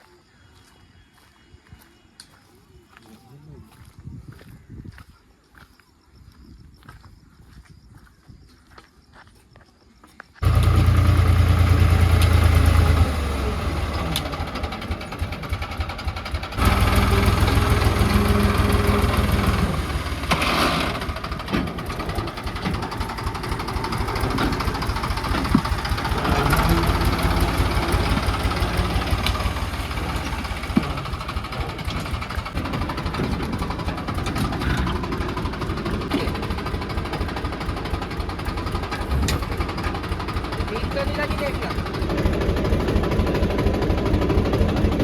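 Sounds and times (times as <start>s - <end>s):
diesel tractor engine under load: 10.4s - 45.0s.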